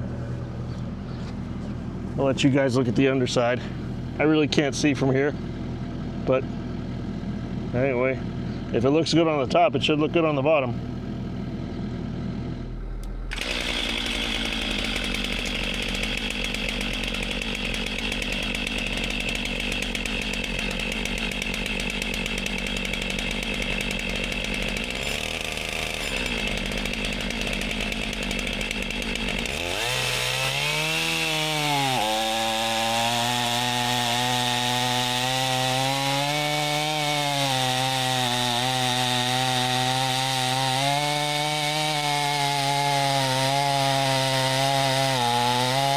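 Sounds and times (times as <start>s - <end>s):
small engine running hard: 9.9s - 45.9s.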